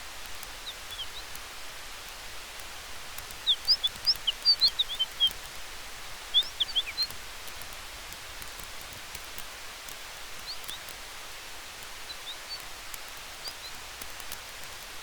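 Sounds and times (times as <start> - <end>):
fire crackles: 0.0 - 15.0
wind and fire hiss: 0.0 - 15.0
small bird chirping: 0.4 - 1.4, 3.1 - 7.8, 10.2 - 11.0, 11.7 - 14.6.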